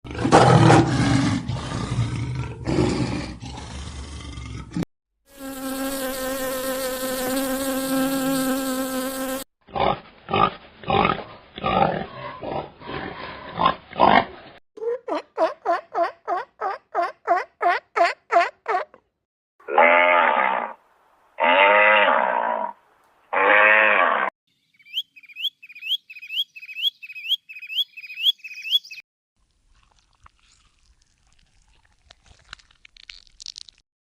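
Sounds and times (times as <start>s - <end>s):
insect-like buzz: 5.3s - 9.5s
rapid repeated chirps: 24.8s - 29.0s.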